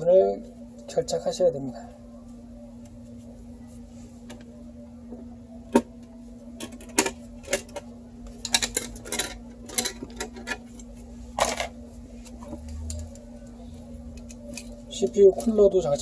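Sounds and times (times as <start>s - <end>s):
computer parts clicking and clattering: 8.4s - 10.6s.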